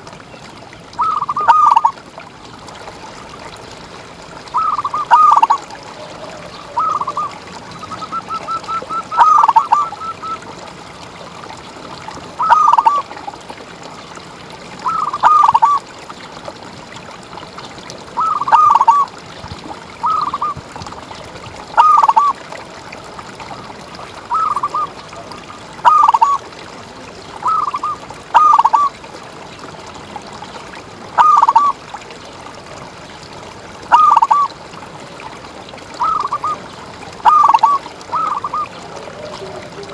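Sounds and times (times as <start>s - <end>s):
dove cooing: 4.6s - 10.4s, 36.0s - 36.6s, 37.2s - 39.9s.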